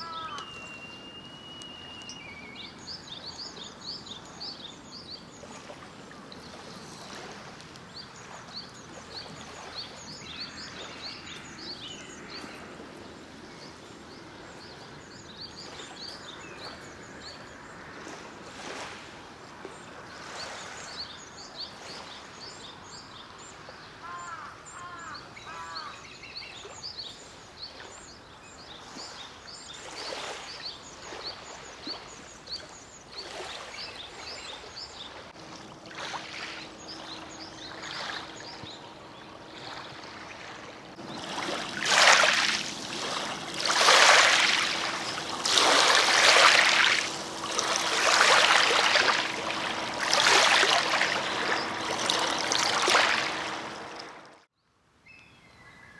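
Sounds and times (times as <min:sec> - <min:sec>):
small birds chirping: 0:00.0 - 0:05.8, 0:07.8 - 0:17.7, 0:36.0 - 0:54.2
waves washing onto shore: 0:33.2 - 0:54.5
faint steady hum: 0:35.4 - 0:54.4.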